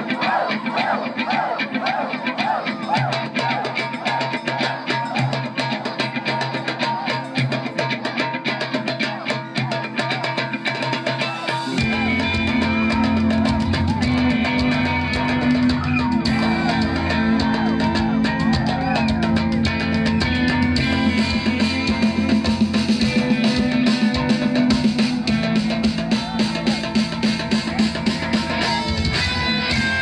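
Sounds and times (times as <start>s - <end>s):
drums: 0.0s - 30.0s
guitar: 0.0s - 30.0s
bass line: 11.8s - 30.0s.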